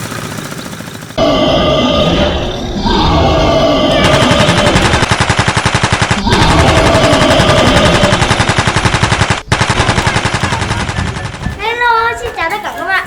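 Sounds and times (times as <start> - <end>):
small engine chugging: 0.0 - 1.3, 4.0 - 12.5.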